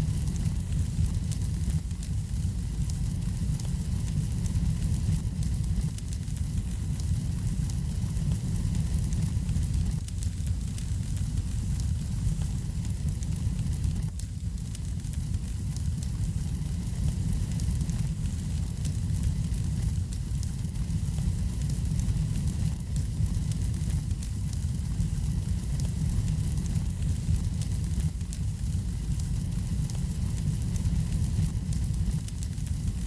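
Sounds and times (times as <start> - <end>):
flames rumbling: 0.0 - 33.0
wood fire crackling and popping: 0.0 - 33.0.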